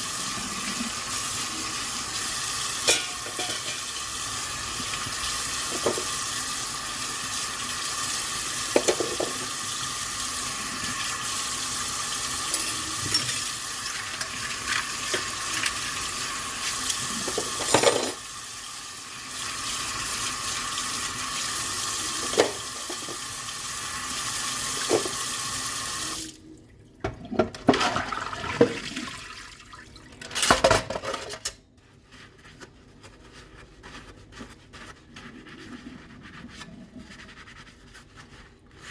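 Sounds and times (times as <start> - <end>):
kitchen tap running into sink: 0.0 - 26.4, 27.0 - 30.7
dishes clinking and clattering: 2.8 - 4.0, 8.7 - 9.4, 12.5 - 14.4, 17.2 - 18.2, 30.1 - 31.6.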